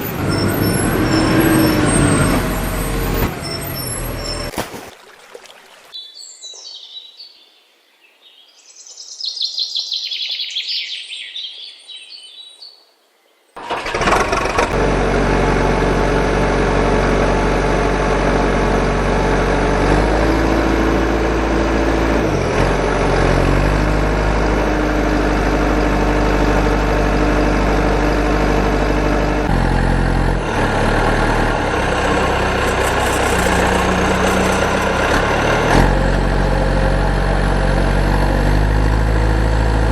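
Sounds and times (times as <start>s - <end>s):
heavy truck engine: 0.0s - 4.5s, 13.6s - 39.9s
birds chirping: 5.6s - 13.6s.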